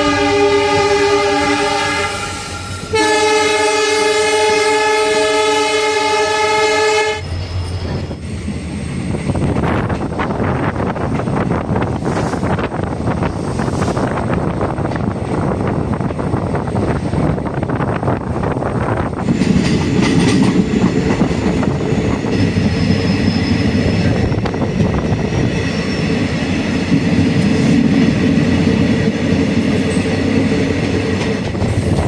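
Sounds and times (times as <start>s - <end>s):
train wheels rumbling on rails: 0.0s - 32.0s
wheel squeal: 22.2s - 24.5s, 25.6s - 26.3s.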